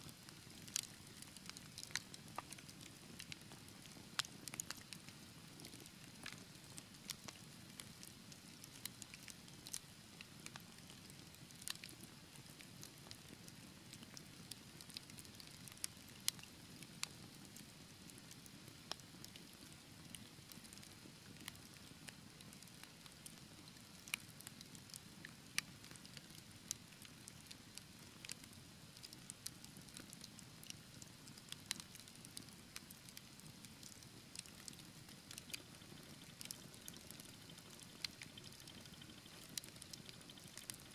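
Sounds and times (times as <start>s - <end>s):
fire crackling and popping: 0.3s - 17.6s, 29.0s - 40.9s.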